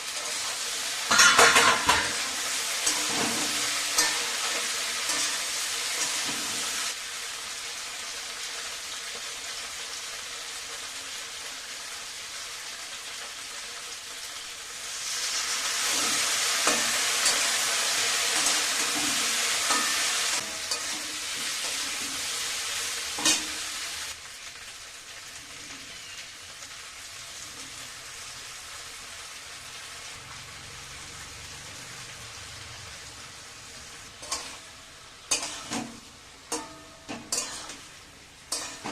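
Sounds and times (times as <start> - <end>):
food sizzling in oil: 0.0 - 38.9
spoon tapping a pan: 36.5 - 37.7.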